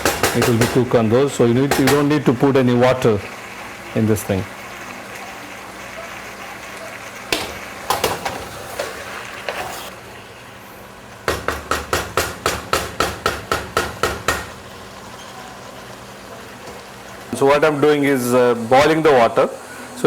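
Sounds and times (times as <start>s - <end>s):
sharp knocks: 0.0s - 0.9s, 1.7s - 2.1s, 11.3s - 14.6s.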